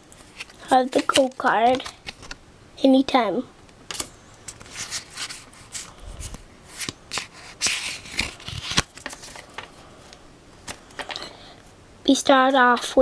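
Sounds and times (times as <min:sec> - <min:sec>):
trading cards rustling and sliding: 0:00.2 - 0:02.4, 0:03.9 - 0:11.3
foil pack crinkling: 0:06.7 - 0:09.8.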